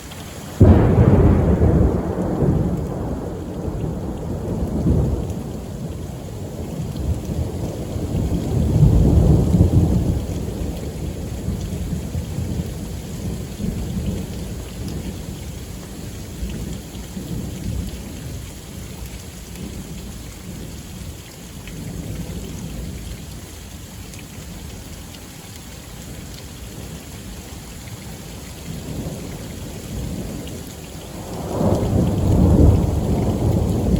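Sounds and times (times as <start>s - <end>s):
steady rain: 0.0s - 33.9s
thunder crack and rumble: 0.6s - 18.0s, 28.7s - 33.9s.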